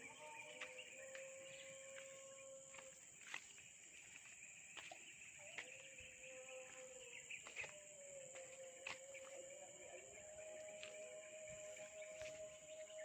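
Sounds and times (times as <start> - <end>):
high insect drone: 0.0 - 13.0
low wavering call: 6.2 - 13.0.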